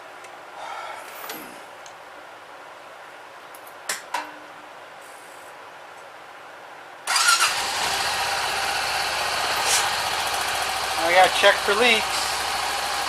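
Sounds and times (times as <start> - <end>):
single-cylinder engine running: 7.1 - 13.0.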